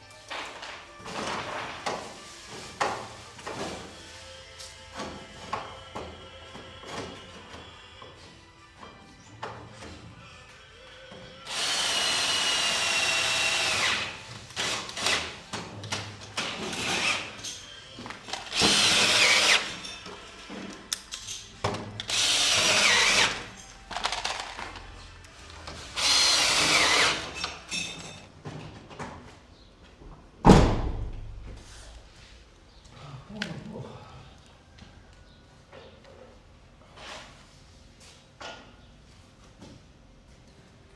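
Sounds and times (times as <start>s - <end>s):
power drill whining: 11.4s - 15.3s, 18.4s - 19.8s, 22.0s - 23.6s, 26.0s - 27.6s.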